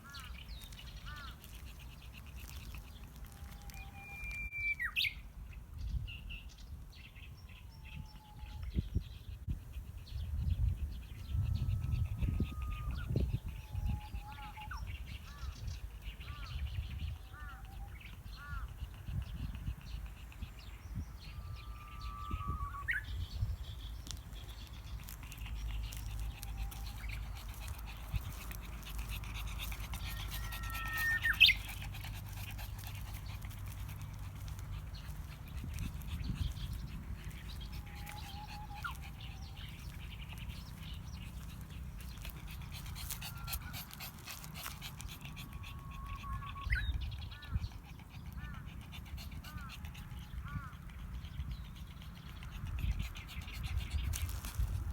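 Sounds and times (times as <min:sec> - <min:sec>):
small birds chirping: 0:00.0 - 0:05.2, 0:08.8 - 0:54.9
bush warbler singing: 0:10.0 - 0:49.7.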